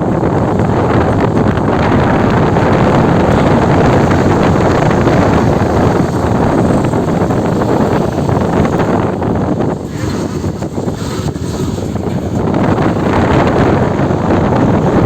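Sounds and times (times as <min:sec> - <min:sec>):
car road noise: 0:00.0 - 0:15.0
wind buffeting microphone: 0:00.0 - 0:15.0.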